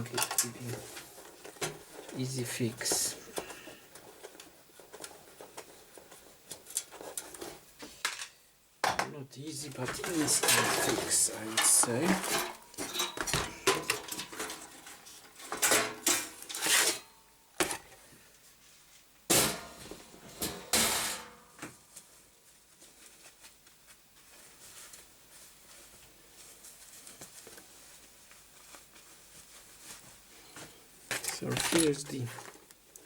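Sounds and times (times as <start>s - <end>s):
metal parts knocking and clinking: 9.9s - 14.6s, 31.2s - 32.5s.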